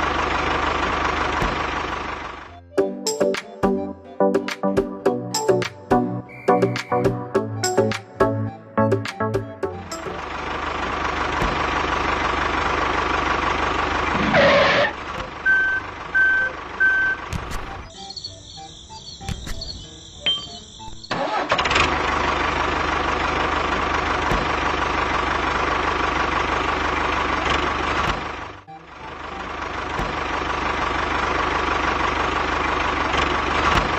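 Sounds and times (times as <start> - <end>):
motor running: 10.1 - 33.9
short beeps: 15.4 - 17.2, 17.8 - 21.2.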